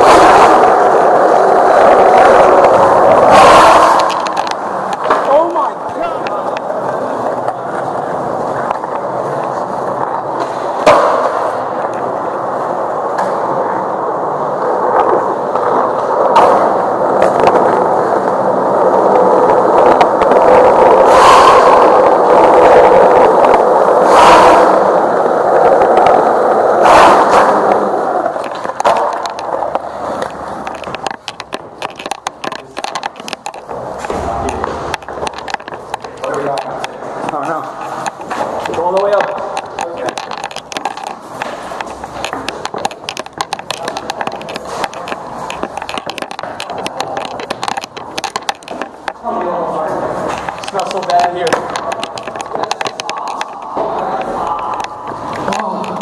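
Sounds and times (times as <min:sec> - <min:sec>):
skateboard clacks: 0:00.0 - 0:56.0
skateboard wheels rolling on pavement: 0:00.0 - 0:56.0
scattered ticks: 0:27.7 - 0:49.2, 0:50.2 - 0:56.0.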